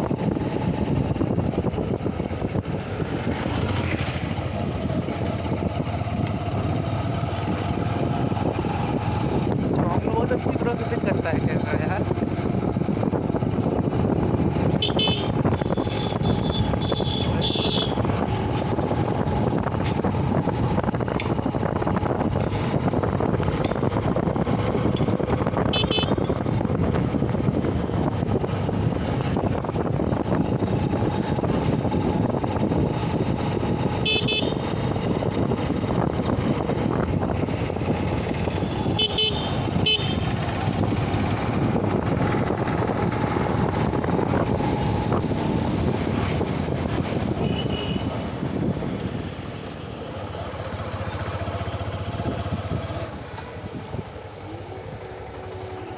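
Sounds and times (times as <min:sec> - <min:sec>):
motorcycle engine: 0:00.0 - 0:55.9
road and wind noise: 0:00.0 - 0:55.9
high-pitched horn toots: 0:38.8 - 0:40.3.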